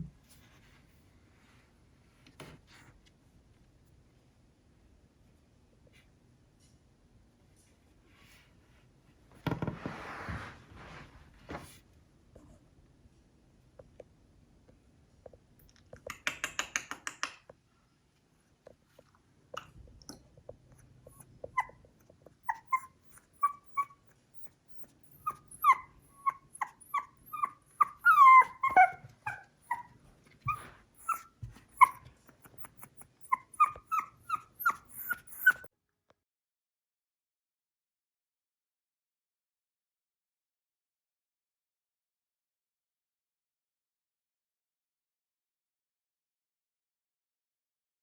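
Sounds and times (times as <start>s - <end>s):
puppy whimpering and yipping: 21.1s - 35.7s.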